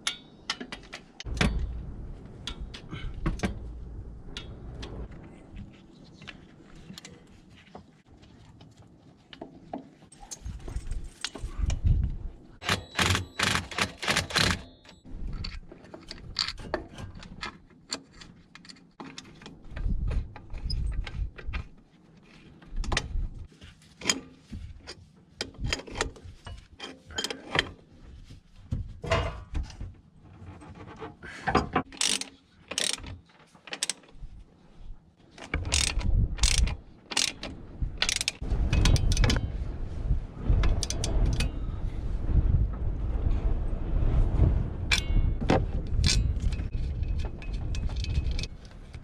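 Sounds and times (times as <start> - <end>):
socket ratchet clicking: 32.0 - 33.0, 35.7 - 39.3.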